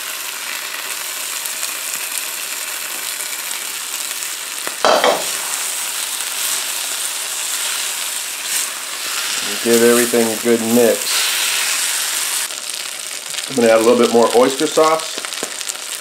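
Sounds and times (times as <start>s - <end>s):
food sizzling in a wok: 0.0s - 16.0s
spatula stirring food: 5.2s - 12.5s.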